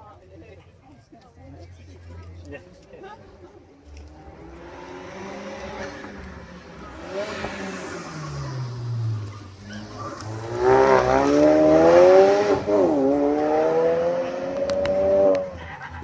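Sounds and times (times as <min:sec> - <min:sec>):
car engine accelerating hard: 0:03.8 - 0:16.0.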